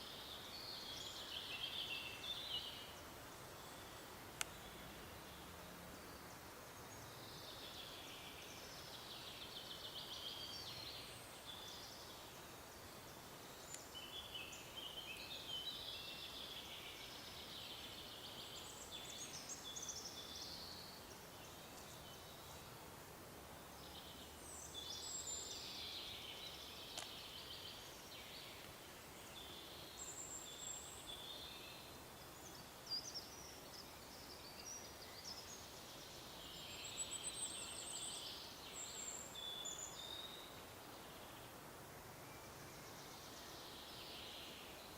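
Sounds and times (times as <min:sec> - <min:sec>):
background hiss: 0:00.0 - 0:44.9
songbirds chirping and warbling: 0:00.0 - 0:44.9.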